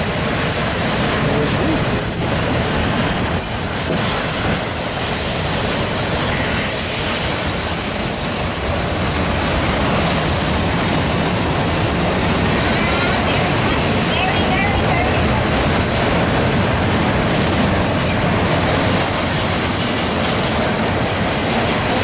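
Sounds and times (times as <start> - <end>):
freight train rumbling past: 0.0 - 22.0
high-pitched wheel squeal: 6.2 - 9.1.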